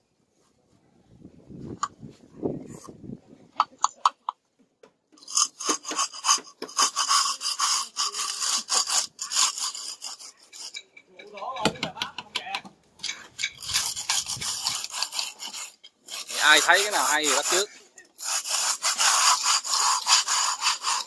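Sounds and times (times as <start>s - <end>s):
hand tool scraping plaster: 5.2s - 12.1s, 13.0s - 21.0s.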